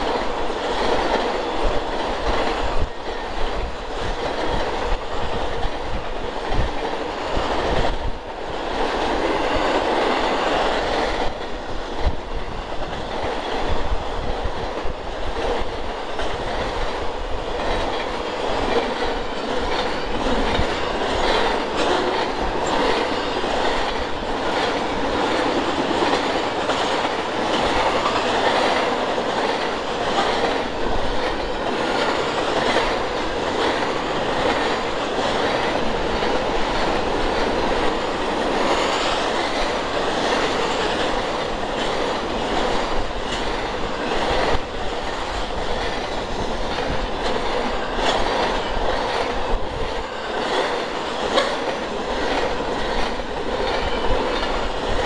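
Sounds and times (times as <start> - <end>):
train rumble: 0.0 - 55.0
train wheels clicking over rail joints: 0.0 - 55.0.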